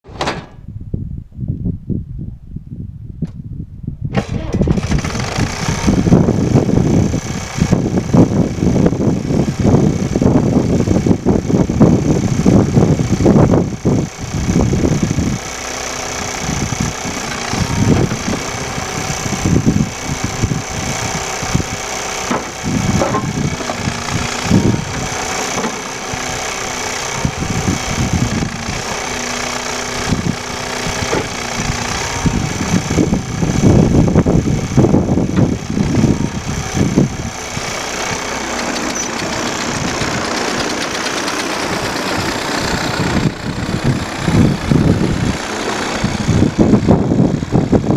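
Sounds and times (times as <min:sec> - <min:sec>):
skid steer engine running: 0:04.1 - 0:47.9
low thumps: 0:16.7 - 0:26.4.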